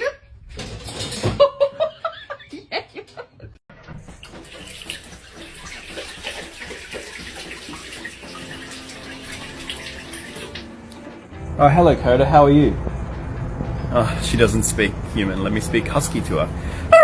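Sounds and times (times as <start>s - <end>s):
tap water splashing into tub: 4.1s - 11.2s.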